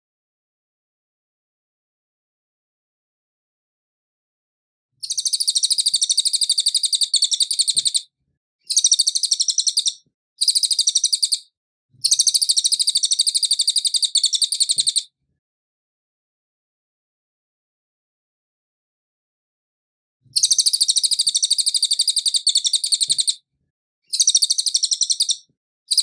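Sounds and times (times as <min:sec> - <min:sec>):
songbird trilling: 0:05.0 - 0:08.0, 0:08.7 - 0:11.4, 0:12.0 - 0:15.1, 0:20.4 - 0:23.4, 0:24.1 - 0:26.0.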